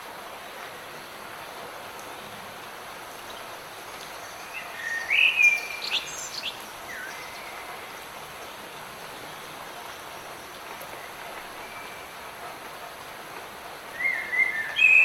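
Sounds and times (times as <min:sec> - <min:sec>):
steady rain: 0:00.0 - 0:15.0
songbird whistling: 0:04.8 - 0:06.4, 0:14.0 - 0:15.0.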